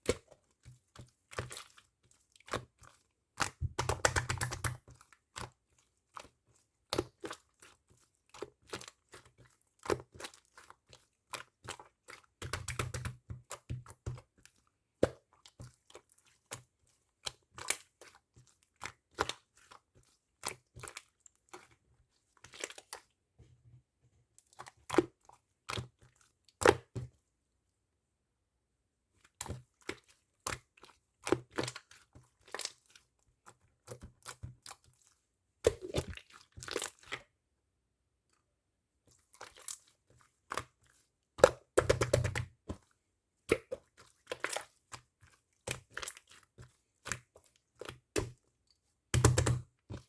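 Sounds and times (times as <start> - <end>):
slime clicking and popping: 3.4 - 4.8.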